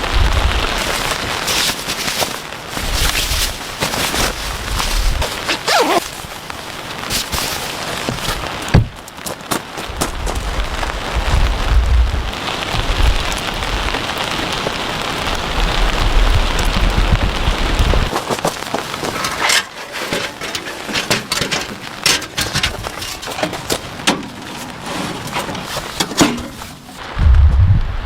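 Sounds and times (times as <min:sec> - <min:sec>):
rain hissing: 0:00.0 - 0:28.0
low rumble: 0:10.3 - 0:13.9, 0:27.1 - 0:28.0.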